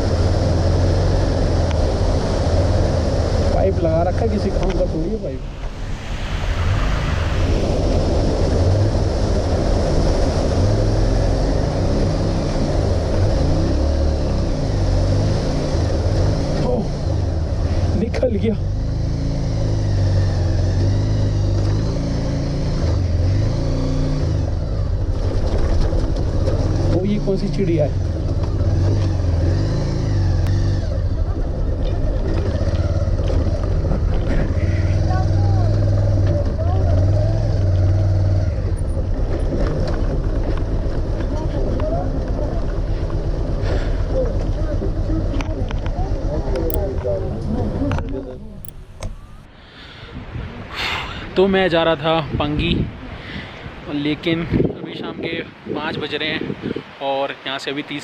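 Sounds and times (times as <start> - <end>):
steady rushing noise: 0.0 - 18.5
motorcycle engine running: 8.7 - 49.5.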